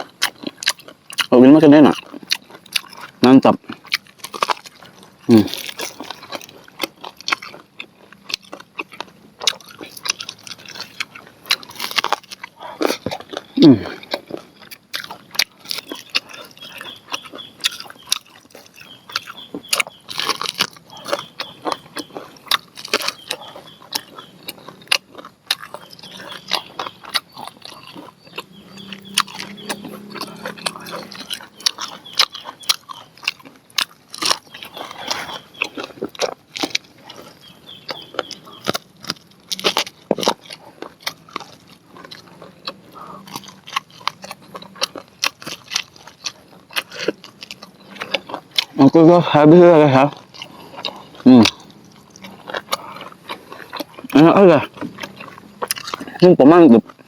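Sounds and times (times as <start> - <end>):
crunching corn on the cob: 0.0 - 57.0.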